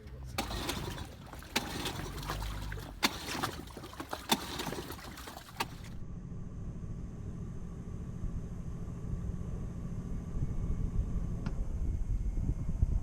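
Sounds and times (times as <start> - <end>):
water splashing around boat: 0.0 - 6.0
steady low hum: 0.0 - 13.0.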